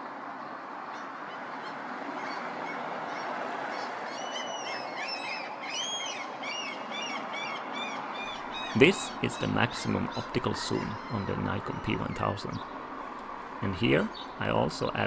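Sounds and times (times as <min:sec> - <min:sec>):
city background hum: 0:08.3 - 0:15.0
gulls calling: 0:08.3 - 0:15.0.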